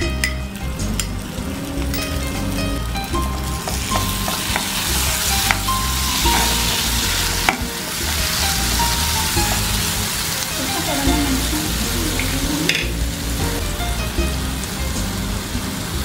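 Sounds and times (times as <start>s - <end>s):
vegetables sizzling in oil: 0.0s - 16.0s
wooden spatula stirring: 3.3s - 11.2s
spatula knocking on pan: 3.4s - 9.9s.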